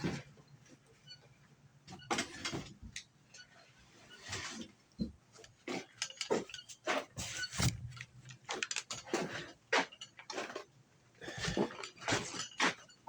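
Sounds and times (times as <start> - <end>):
hand tools clicking and scraping: 5.4 - 13.0.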